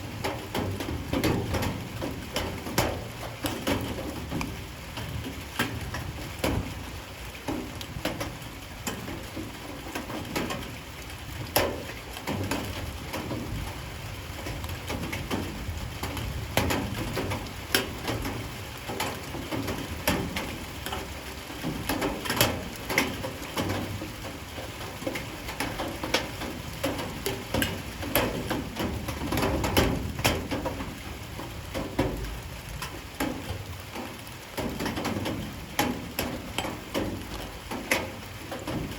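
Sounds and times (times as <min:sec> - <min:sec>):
light rain falling: 0:00.0 - 0:38.9
drips tapping on hard surfaces: 0:00.2 - 0:06.8, 0:11.5 - 0:13.5, 0:32.8 - 0:38.9.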